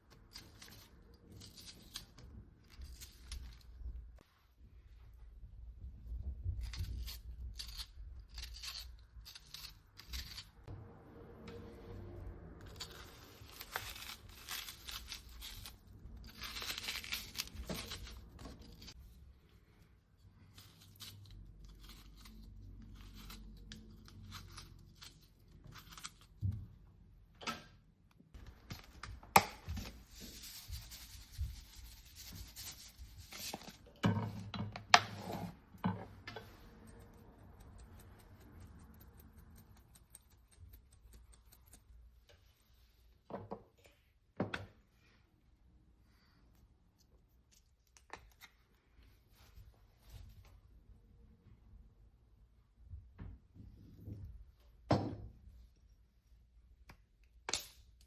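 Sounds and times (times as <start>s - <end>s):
rustling and scraping: 0.0s - 26.8s, 28.4s - 43.3s.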